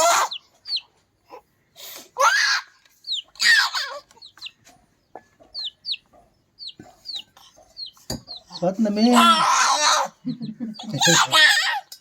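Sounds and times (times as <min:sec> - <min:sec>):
chickens squawking: 0:00.0 - 0:11.9
high falling peeps: 0:02.3 - 0:11.3.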